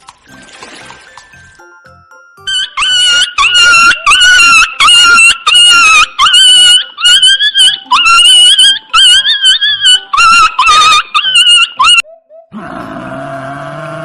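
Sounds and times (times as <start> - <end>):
puppy whining and yelping: 2.5 - 12.5.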